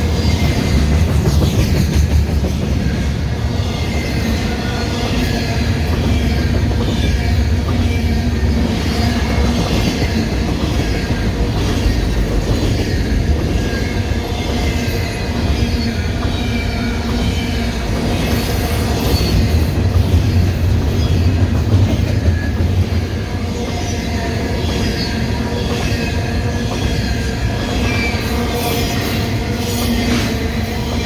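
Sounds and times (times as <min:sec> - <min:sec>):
clickety-clack over rail joints: 0:00.0 - 0:31.0
freight train rumbling past: 0:00.0 - 0:31.0.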